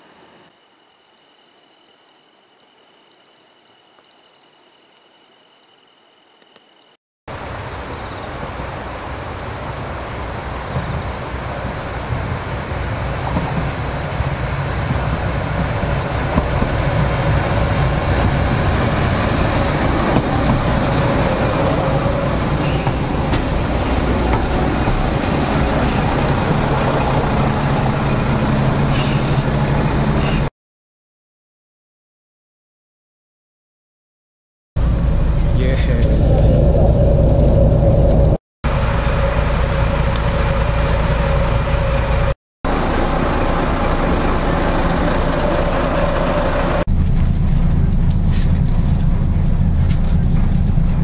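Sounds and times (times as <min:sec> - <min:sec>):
diesel railcar running on rails: 0:07.3 - 0:30.5, 0:34.8 - 0:51.0
brief high squeal: 0:21.4 - 0:24.5.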